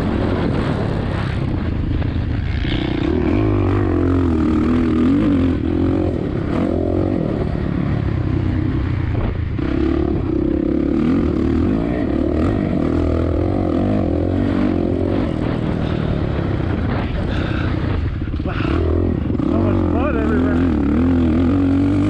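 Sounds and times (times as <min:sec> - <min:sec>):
wind noise on microphone: 0:00.0 - 0:06.6, 0:14.0 - 0:19.6
dirt bike engine revving: 0:00.0 - 0:22.0.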